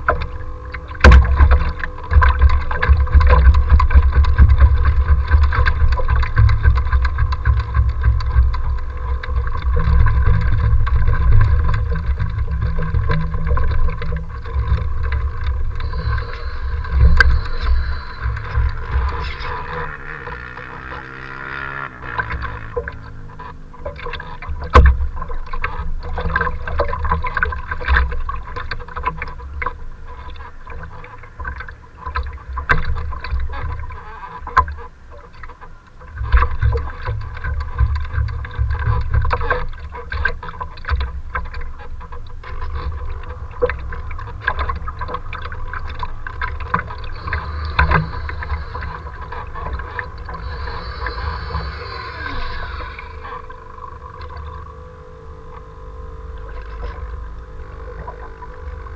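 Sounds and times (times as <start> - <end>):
wind rumbling on microphone: 0.0 - 31.4
choppy water splashing: 0.0 - 58.9
faint steady tone: 0.0 - 58.9.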